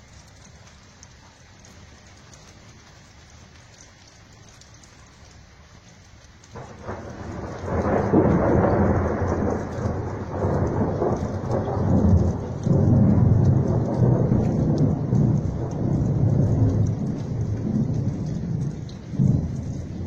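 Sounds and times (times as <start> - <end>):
rain hiss: 0.0 - 20.0
thunder rumbling: 6.6 - 20.0.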